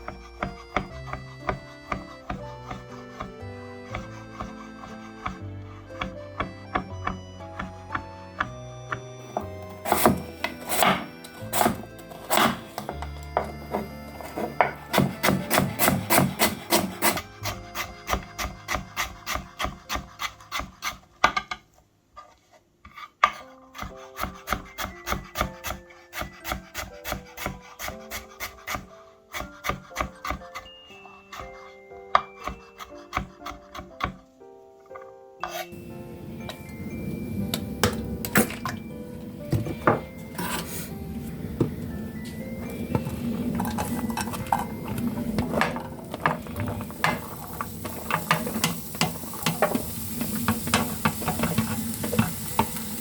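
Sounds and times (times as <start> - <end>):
soft background music: 0.0 - 21.2, 22.4 - 53.0
knife cutting on wooden board: 0.0 - 21.5.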